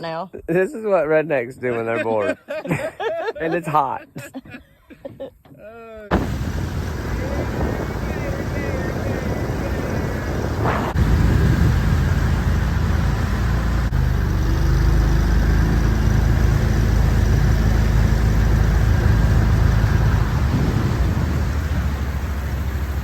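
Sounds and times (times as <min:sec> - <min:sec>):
rush of wind and water: 0:06.1 - 0:14.0, 0:15.5 - 0:23.0
boat motor running: 0:06.1 - 0:23.0.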